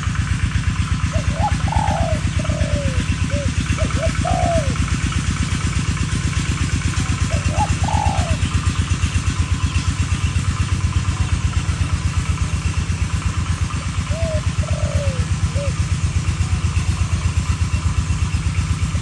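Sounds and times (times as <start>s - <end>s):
doves cooing: 1.0s - 5.4s, 7.0s - 9.0s, 13.8s - 16.0s.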